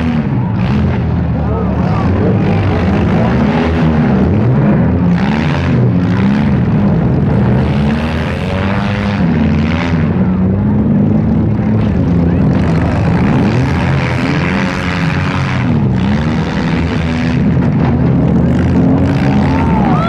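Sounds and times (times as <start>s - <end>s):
car engines revving: 0.0s - 20.0s.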